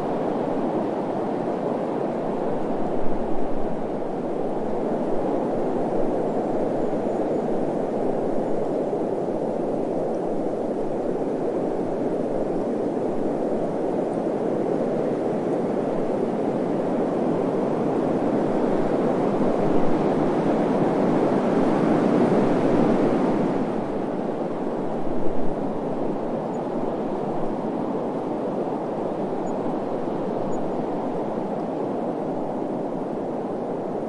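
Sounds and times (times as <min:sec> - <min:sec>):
steady low wind: 0:00.0 - 0:34.0.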